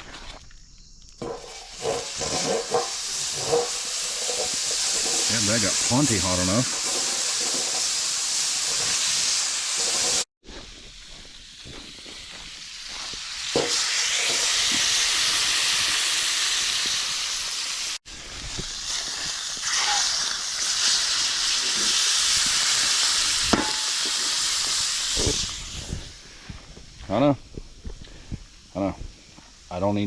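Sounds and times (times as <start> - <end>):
steaks sizzling in a pan: 1.4 - 10.3, 11.0 - 26.2.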